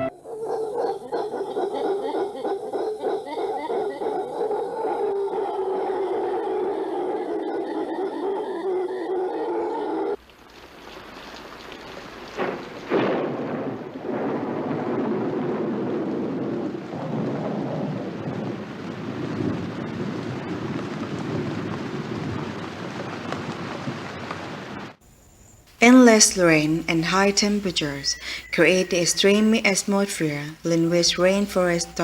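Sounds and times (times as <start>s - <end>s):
heavy rain falling: 10.3s - 25.0s
thunder cracks: 12.3s - 24.8s.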